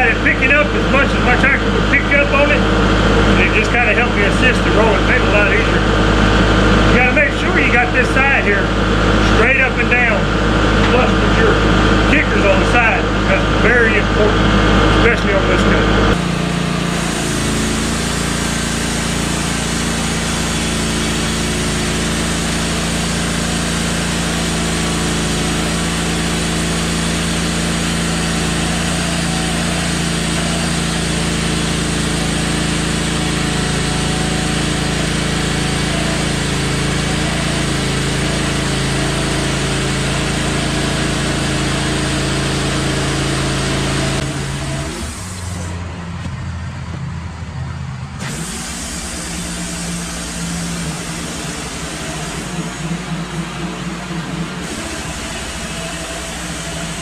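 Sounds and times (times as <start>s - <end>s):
bandsaw blade cutting log: 0.0s - 45.8s, 48.2s - 57.0s
engine drone: 0.0s - 57.0s.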